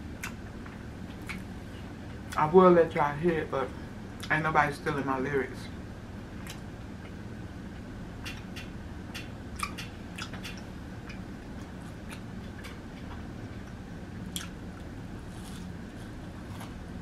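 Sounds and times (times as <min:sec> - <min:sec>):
chewing crunchy food: 0:09.6 - 0:16.9.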